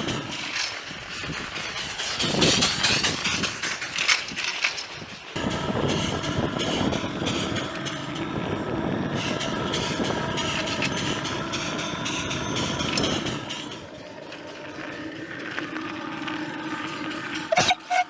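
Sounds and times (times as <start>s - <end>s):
vehicle engine running: 5.4s - 17.5s.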